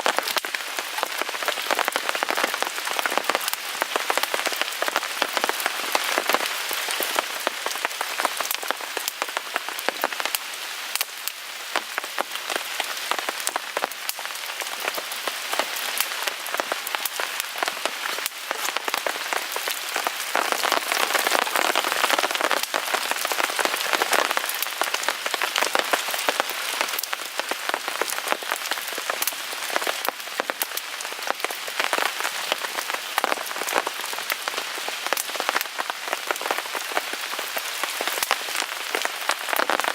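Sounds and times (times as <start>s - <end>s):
rain on a tarp: 0.0s - 39.9s
wood fire crackling: 0.0s - 39.9s.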